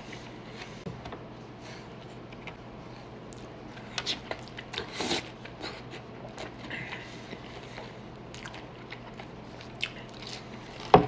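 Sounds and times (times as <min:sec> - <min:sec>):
person biting and chewing food: 0:03.3 - 0:11.0.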